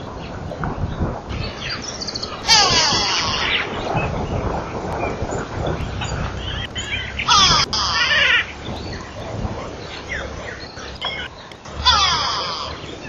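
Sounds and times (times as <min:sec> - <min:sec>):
wild birds calling: 0:00.0 - 0:13.0
loud rapidly wavering bird call: 0:01.3 - 0:05.2, 0:05.9 - 0:09.2, 0:09.8 - 0:13.0.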